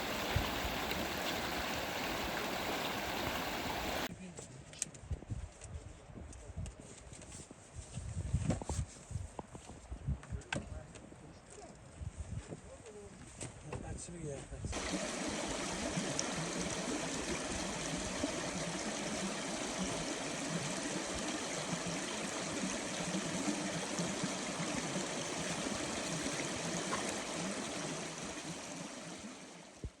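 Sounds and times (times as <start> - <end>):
stream flowing: 0.0 - 4.1, 14.8 - 29.8.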